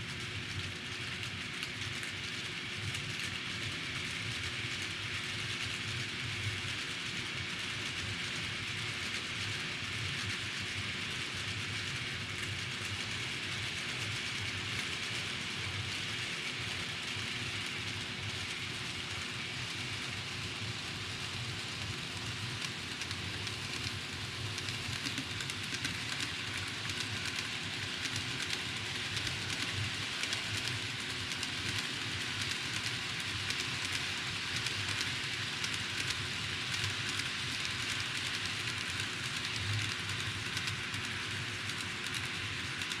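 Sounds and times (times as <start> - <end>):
model train whirring on track: 0.0 - 43.0
wheels clicking on rails: 21.3 - 43.0.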